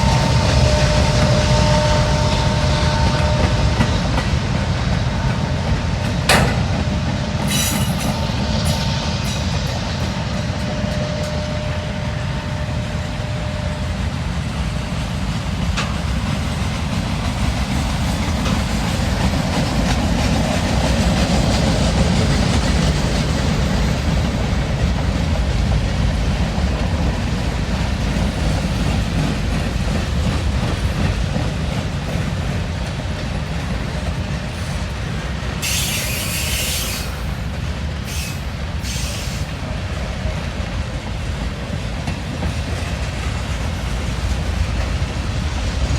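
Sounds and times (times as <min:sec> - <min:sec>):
train rumbling on rails: 0:00.0 - 0:45.9
short bursts of hiss: 0:35.6 - 0:37.3, 0:38.1 - 0:39.5.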